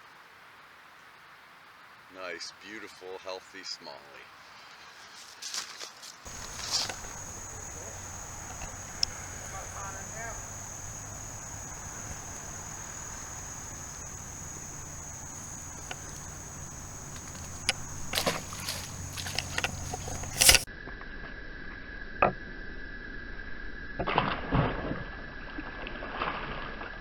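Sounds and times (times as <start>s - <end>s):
handling noise rustles and clicks: 5.5s - 20.7s
high-pitched insect drone: 6.3s - 20.7s.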